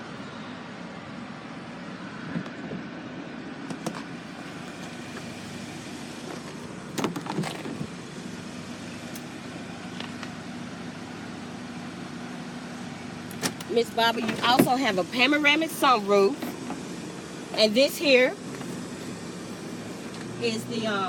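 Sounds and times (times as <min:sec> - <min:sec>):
car cabin hum: 0:03.6 - 0:10.4, 0:13.3 - 0:21.0.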